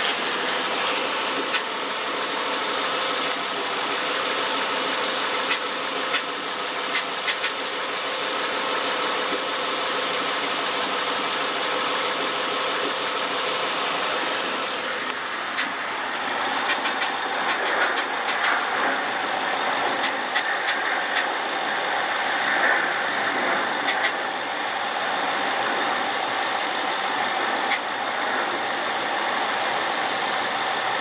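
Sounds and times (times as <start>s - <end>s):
car engine idling: 0.0s - 31.0s
engine ticking: 0.0s - 31.0s
sharp clicks: 16.6s - 19.2s, 19.8s - 24.3s.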